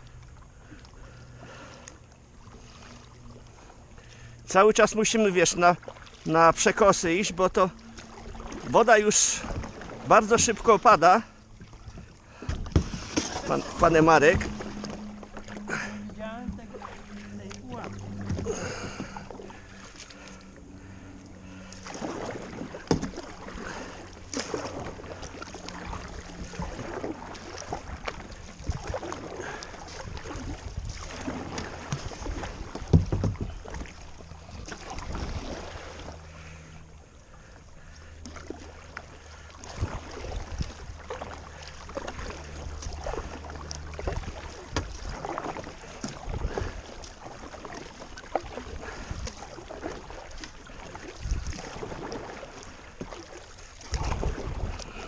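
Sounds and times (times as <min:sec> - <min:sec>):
paddle splashing in water: 0:00.0 - 0:55.0.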